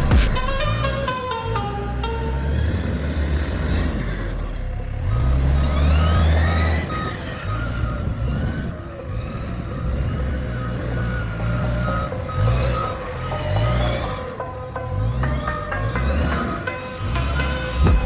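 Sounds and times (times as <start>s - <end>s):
diesel engine under load: 0.0s - 18.0s
rising and falling whine: 11.3s - 18.0s.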